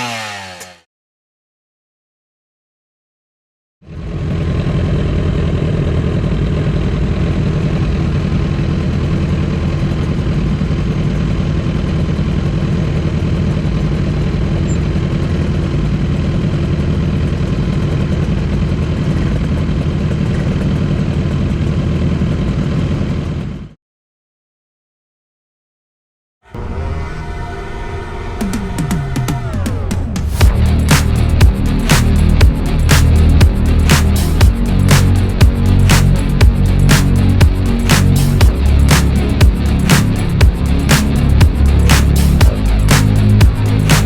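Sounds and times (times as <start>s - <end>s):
motorcycle engine running: 0.0s - 0.8s, 3.9s - 23.7s, 29.4s - 44.0s.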